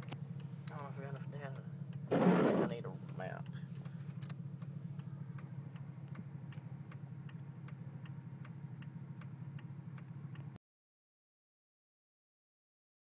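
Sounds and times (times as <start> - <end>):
turn signal clicking: 0.0 - 10.6
vehicle engine hum: 0.0 - 10.6.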